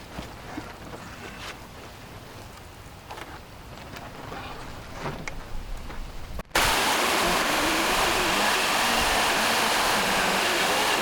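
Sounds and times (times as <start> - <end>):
power saw cutting wood: 6.5 - 11.0.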